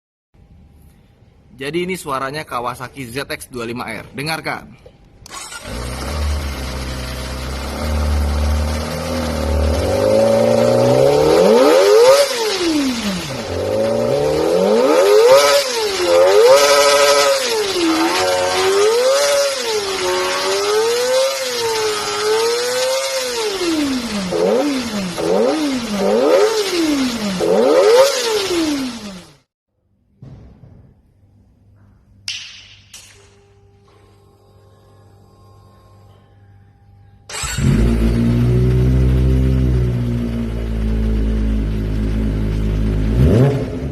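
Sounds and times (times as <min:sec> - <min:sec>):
motorcycle engine revving: 0:05.3 - 0:29.5, 0:37.3 - 0:43.9.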